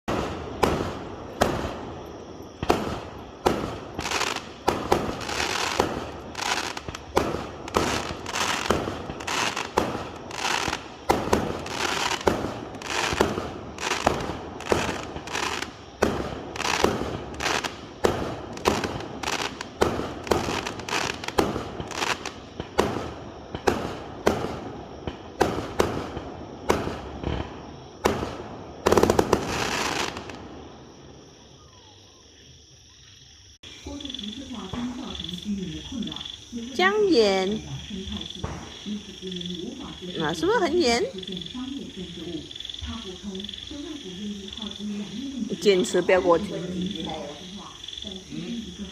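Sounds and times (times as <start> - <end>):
fireworks bangs with crackling: 0.0 - 31.2, 36.8 - 39.0.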